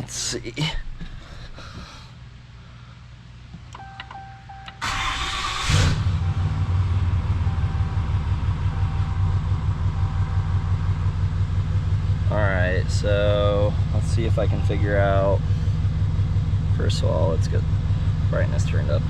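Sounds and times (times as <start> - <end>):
warning chime beeping: 3.8 - 5.5, 6.1 - 11.2
diesel engine cranking and idling: 4.8 - 19.0.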